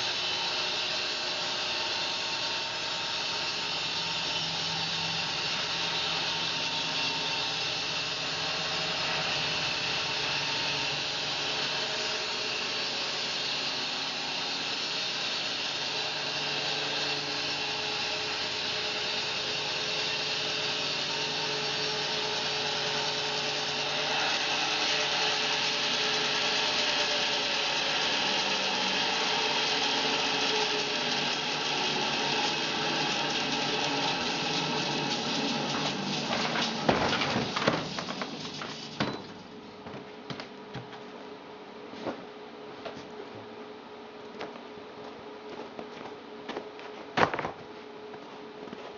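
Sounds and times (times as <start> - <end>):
bandsaw blade cutting log: 19.6 - 39.4.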